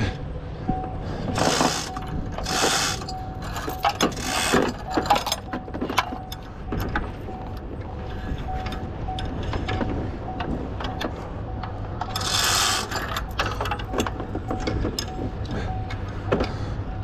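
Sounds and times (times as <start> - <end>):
ratcheting metal clicks and rattles: 1.4 - 7.6, 12.0 - 15.2.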